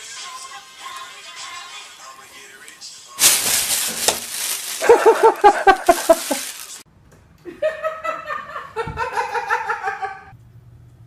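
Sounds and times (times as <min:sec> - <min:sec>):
high-pitched laughter: 0:04.8 - 0:06.5.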